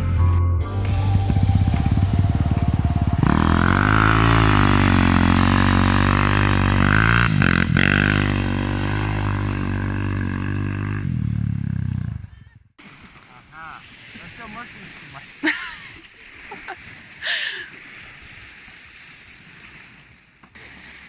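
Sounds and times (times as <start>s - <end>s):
motorcycle engine at high revs: 0.8s - 12.3s.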